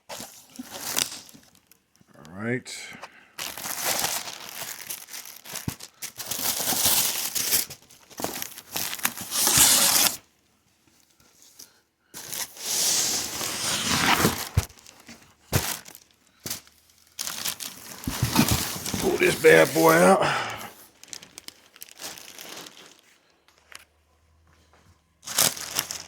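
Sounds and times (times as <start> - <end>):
packaging tearing and crinkling: 0.1 - 1.7, 3.4 - 10.2, 12.2 - 23.0, 25.2 - 26.0.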